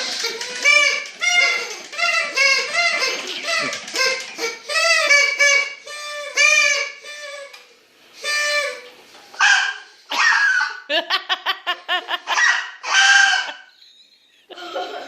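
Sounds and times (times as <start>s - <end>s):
party whistle toots: 0.5s - 7.5s, 8.2s - 10.7s.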